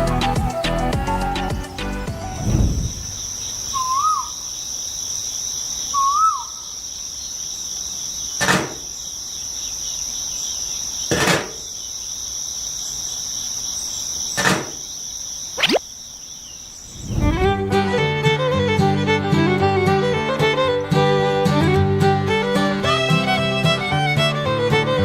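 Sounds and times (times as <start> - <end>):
quick rising sweep: 2.2 - 3.2, 17.0 - 17.7
high-pitched insect trill: 2.3 - 17.4
warbling chirps: 15.6 - 15.9.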